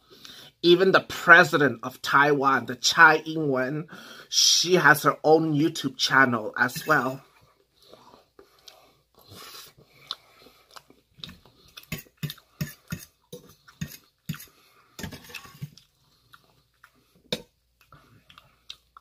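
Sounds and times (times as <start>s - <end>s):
person chewing food: 7.2s - 19.0s.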